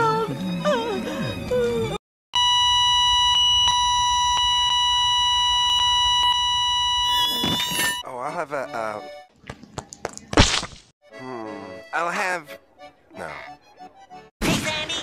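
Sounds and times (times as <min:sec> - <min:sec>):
steady electronic beep tone: 0:02.4 - 0:08.0.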